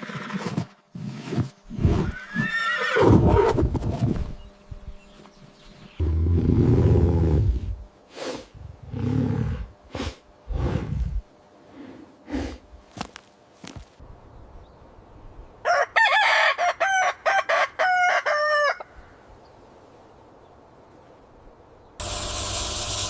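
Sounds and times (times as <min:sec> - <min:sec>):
rooster crowing and clucking: 0:15.6 - 0:19.0.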